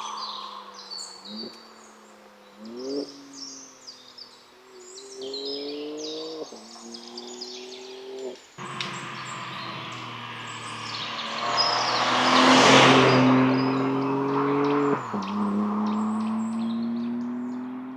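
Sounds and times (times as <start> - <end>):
birds chirping: 0.0 - 17.9
car engine accelerating: 5.3 - 17.9.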